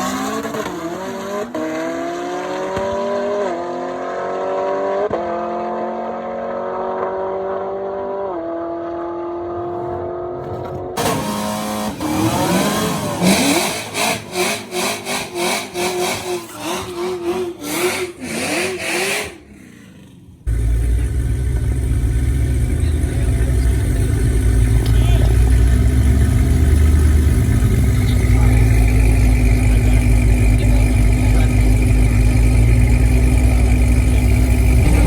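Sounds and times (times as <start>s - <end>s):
car engine rumbling: 9.6s - 35.0s.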